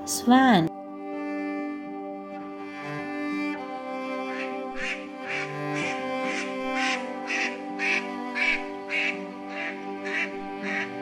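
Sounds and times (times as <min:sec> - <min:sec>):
background music with strings: 0:00.0 - 0:11.0
swan honking: 0:02.6 - 0:11.0.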